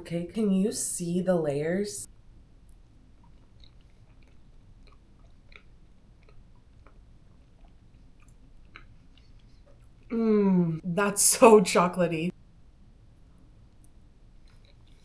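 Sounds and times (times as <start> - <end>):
faint chewing: 2.6 - 10.1, 13.8 - 15.0.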